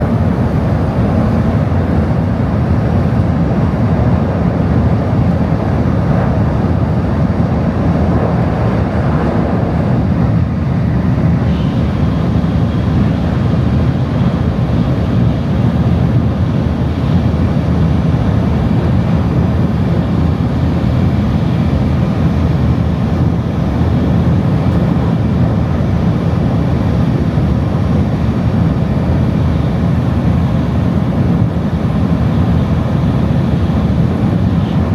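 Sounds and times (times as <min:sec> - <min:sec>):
train cabin low rumble: 0:00.0 - 0:34.9.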